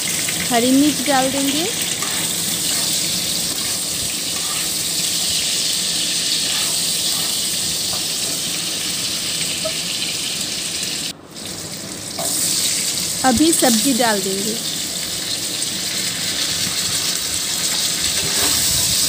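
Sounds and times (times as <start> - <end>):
vegetables sizzling in oil: 0.0 - 19.0
spatula stirring in pan: 1.7 - 8.7.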